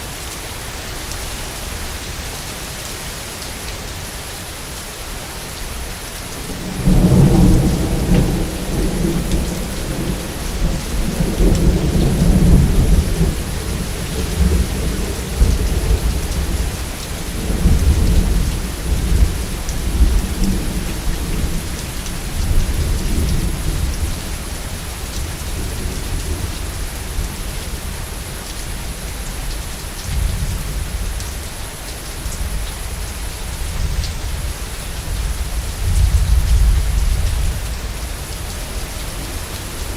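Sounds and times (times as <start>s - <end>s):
heavy rain: 0.0s - 39.9s
rolling thunder: 6.6s - 24.1s.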